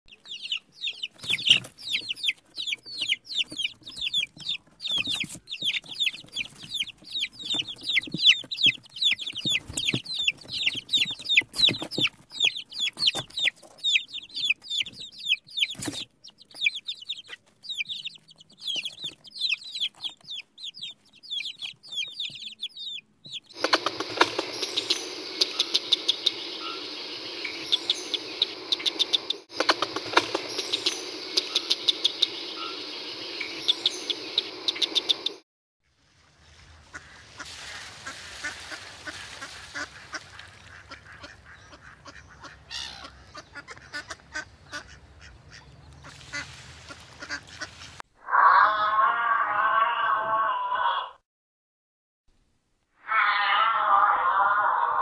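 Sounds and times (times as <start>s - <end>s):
baby chicks peeping: 0.1s - 35.4s, 38.5s - 48.0s
steady hiss: 23.6s - 35.2s.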